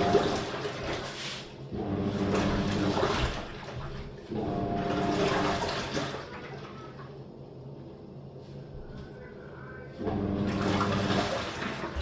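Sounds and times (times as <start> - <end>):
water churning around clothes: 0.0 - 7.3, 10.0 - 12.0
washing machine motor humming: 0.0 - 12.0.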